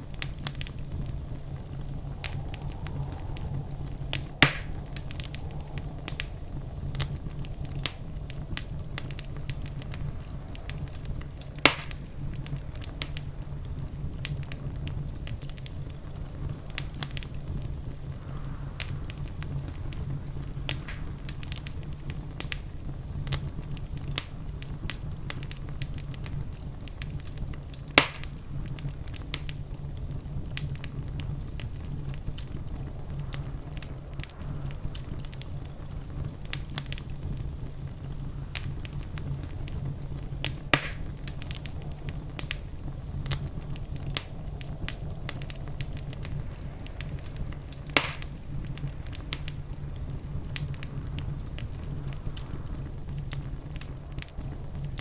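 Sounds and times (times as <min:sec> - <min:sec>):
fire pops: 0:00.0 - 0:55.0
wood fire crackling: 0:00.0 - 0:55.0.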